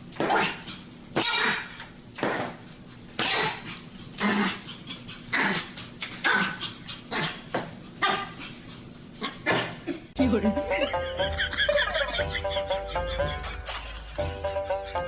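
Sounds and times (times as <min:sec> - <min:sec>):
dog barking: 0:08.0 - 0:08.4.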